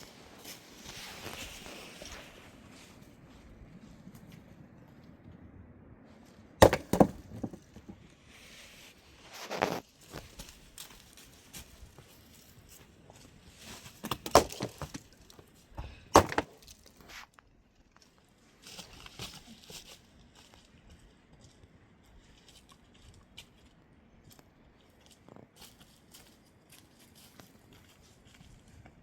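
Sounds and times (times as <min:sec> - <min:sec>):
sharp wooden knocks: 0:06.6 - 0:08.0.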